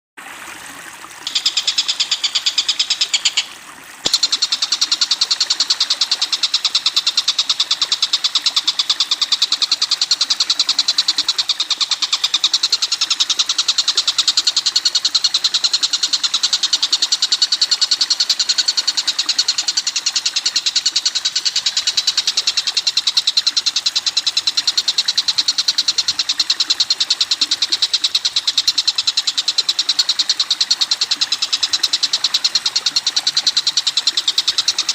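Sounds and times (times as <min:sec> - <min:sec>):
rapid bird chatter: 0:01.2 - 0:17.6.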